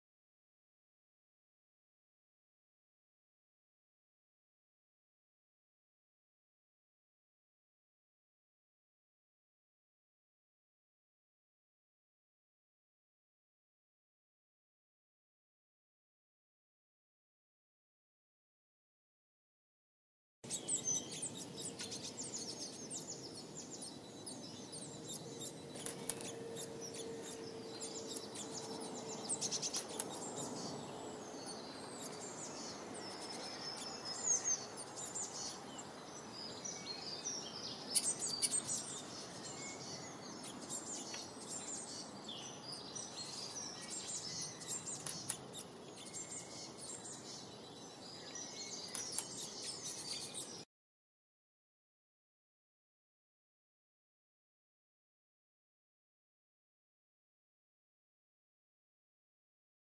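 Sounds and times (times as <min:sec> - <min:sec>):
songbirds chirping and singing: 0:20.5 - 0:50.6.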